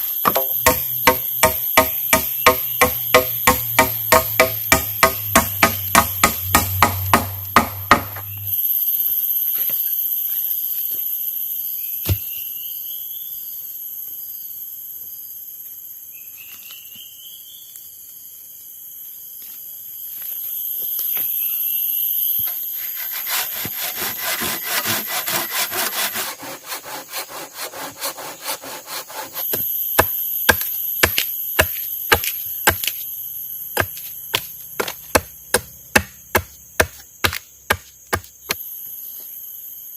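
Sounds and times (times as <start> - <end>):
steady high-pitched buzz: 0.0 - 8.8
hand sawing and chopping wood: 0.2 - 8.4, 22.7 - 33.0, 33.8 - 38.6.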